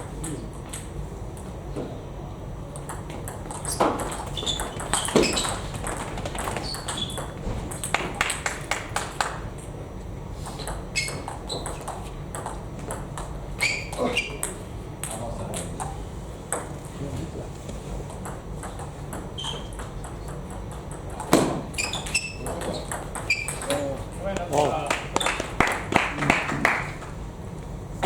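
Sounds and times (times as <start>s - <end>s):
ping pong ball clicking: 2.8s - 8.6s, 10.6s - 13.4s, 18.1s - 23.8s
short high squeaks: 3.6s - 5.8s, 6.5s - 7.3s, 10.5s - 11.8s, 13.6s - 14.4s, 19.4s - 19.8s, 21.7s - 23.7s.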